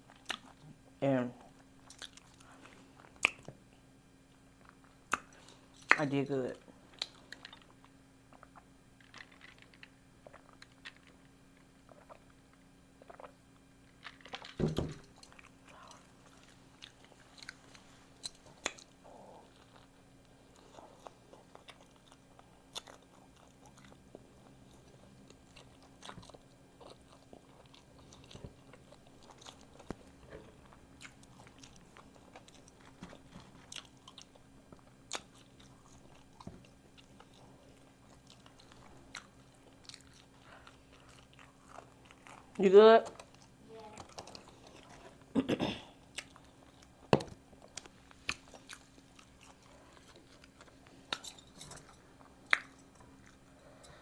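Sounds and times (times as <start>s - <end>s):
chewing and biting: 0.0s - 0.7s, 1.8s - 3.6s, 6.9s - 14.5s, 15.1s - 42.6s, 43.2s - 45.3s, 46.0s - 54.0s
faint low hum: 0.0s - 54.0s
wet mouth clicks: 5.1s - 6.0s.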